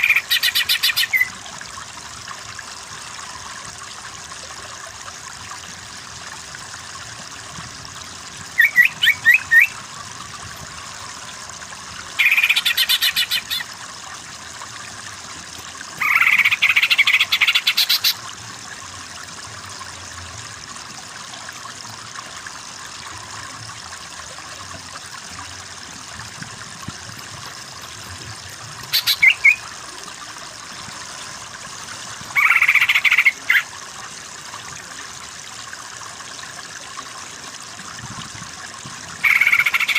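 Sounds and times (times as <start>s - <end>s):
bird chattering calls: 0.0s - 1.3s, 8.6s - 9.7s, 12.2s - 13.7s, 16.0s - 18.2s, 28.9s - 29.6s, 32.4s - 33.6s, 39.2s - 39.9s
running water hiss: 0.0s - 39.9s.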